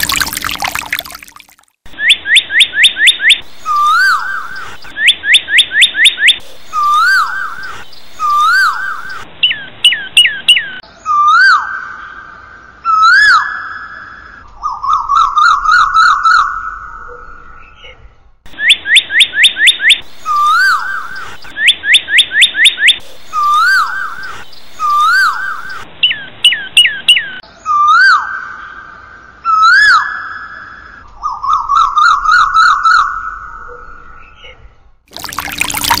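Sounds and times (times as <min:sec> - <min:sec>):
birds singing whistled phrases: 0:01.9 - 0:12.2, 0:18.5 - 0:28.5.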